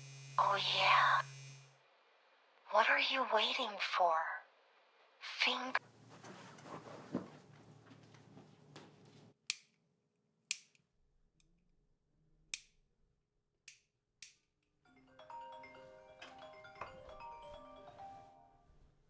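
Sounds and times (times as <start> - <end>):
music with bell-like mallet tones: 14.9 - 18.6.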